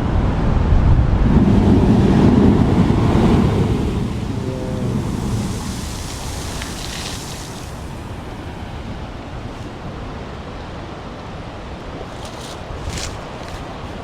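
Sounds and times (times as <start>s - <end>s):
ocean surf against rocks: 0.0s - 14.0s
wind on microphone: 0.0s - 14.0s
high hiss: 2.6s - 8.4s.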